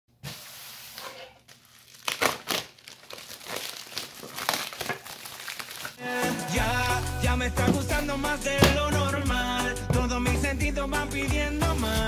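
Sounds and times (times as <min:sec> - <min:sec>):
packaging ripping: 0:00.9 - 0:06.0
packaging crinkling: 0:01.4 - 0:06.0.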